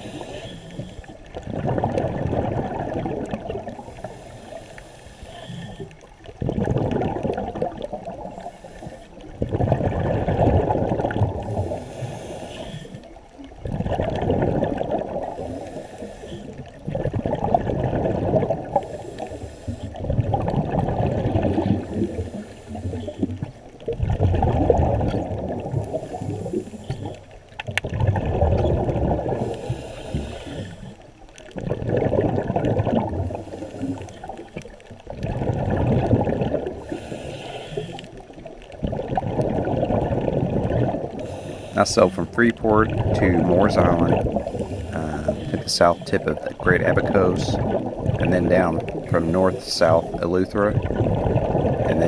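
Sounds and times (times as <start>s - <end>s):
diver breathing through regulator: 0.0s - 1.5s, 3.6s - 6.1s, 8.1s - 10.4s, 11.1s - 13.2s, 15.0s - 17.0s, 18.1s - 20.3s, 21.4s - 23.6s, 25.7s - 27.4s, 29.1s - 31.2s, 33.0s - 34.6s, 36.6s - 38.7s, 41.0s - 50.7s
bubbles gurgling underwater: 0.0s - 4.4s, 5.6s - 52.0s.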